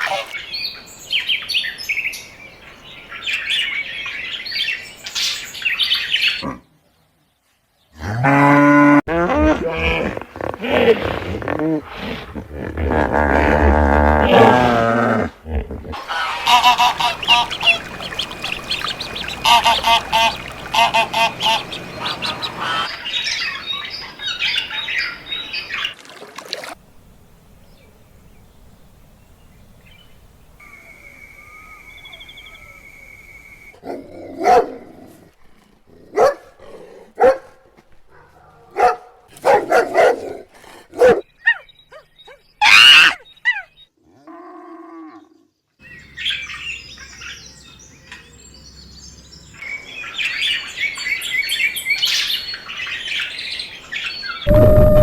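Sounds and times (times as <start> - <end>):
birds calling: 0.0 - 6.8, 15.9 - 26.1.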